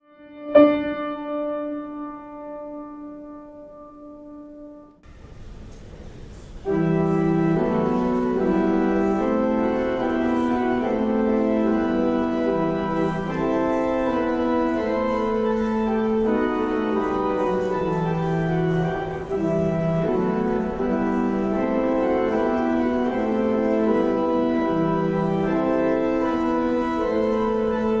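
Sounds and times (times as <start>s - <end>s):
organ playing sustained chords: 6.6s - 28.0s.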